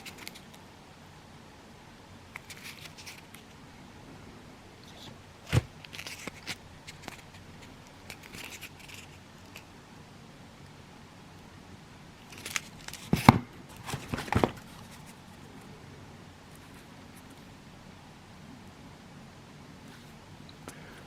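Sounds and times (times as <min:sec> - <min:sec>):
packaging rustling: 0:00.0 - 0:00.6, 0:02.4 - 0:03.5, 0:04.9 - 0:09.7, 0:12.2 - 0:15.2
items scraping: 0:12.2 - 0:15.2.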